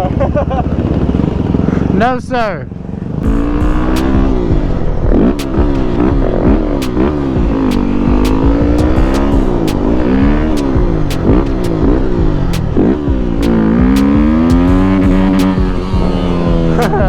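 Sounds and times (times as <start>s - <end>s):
dirt bike engine revving: 2.8s - 17.0s
sharp clicks: 5.3s - 6.0s, 10.5s - 11.8s.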